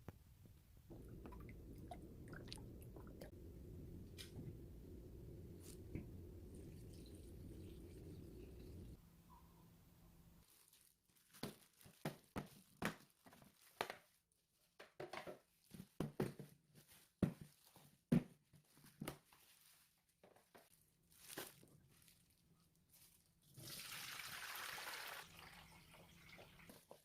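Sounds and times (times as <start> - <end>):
rustling: 18.6 - 23.5.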